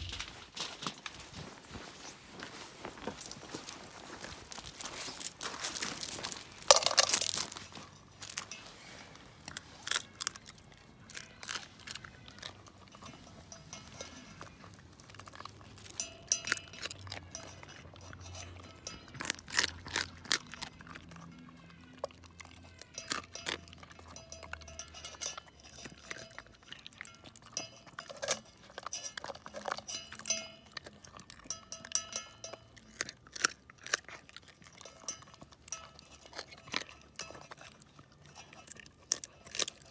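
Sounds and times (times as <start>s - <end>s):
dog crunching and chewing bones: 0.0s - 39.9s
metal pot clinking: 5.2s - 21.5s, 22.7s - 33.0s, 34.7s - 39.9s.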